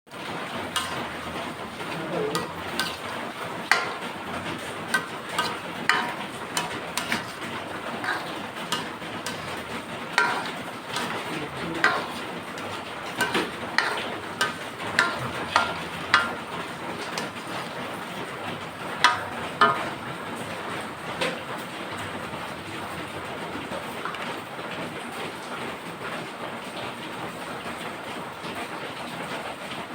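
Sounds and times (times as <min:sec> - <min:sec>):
utensils clinking against metal pot: 0:00.1 - 0:21.4, 0:23.7 - 0:24.4.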